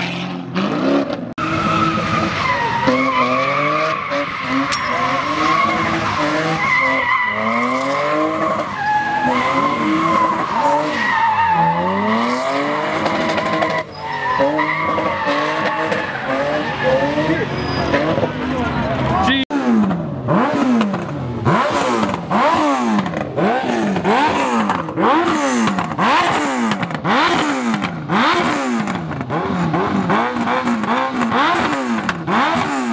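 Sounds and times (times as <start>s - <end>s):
car engine revving: 0.0s - 32.9s
tyres squealing: 13.2s - 18.2s.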